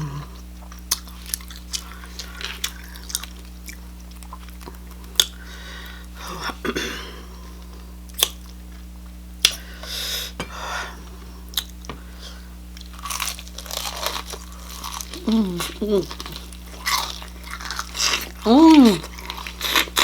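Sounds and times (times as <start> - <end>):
person chewing: 0.0 - 6.6, 8.1 - 8.8, 11.5 - 20.0.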